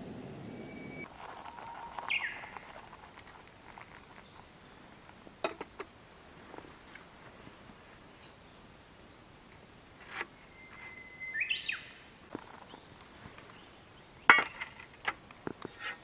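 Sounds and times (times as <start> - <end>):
bird chirp: 0.0 - 3.1, 10.3 - 14.4
low rushing noise: 0.0 - 3.1.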